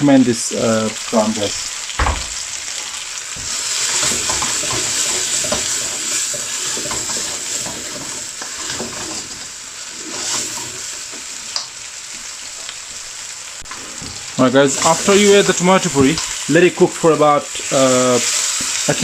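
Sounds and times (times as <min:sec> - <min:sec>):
onions and tomato sizzling in pan: 0:00.0 - 0:19.0
utensil scraping pan: 0:03.4 - 0:11.3, 0:13.7 - 0:16.4.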